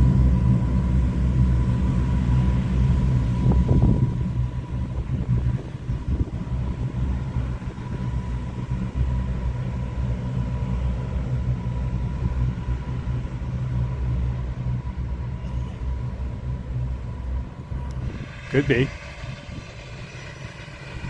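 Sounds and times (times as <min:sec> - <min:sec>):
faint high whine: 0:00.0 - 0:21.0
jet engines rumbling: 0:00.0 - 0:21.0.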